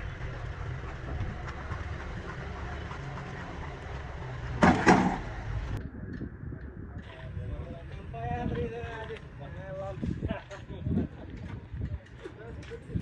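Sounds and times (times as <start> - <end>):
low engine rumble: 0.0 - 13.0
loud bangs: 4.4 - 5.7.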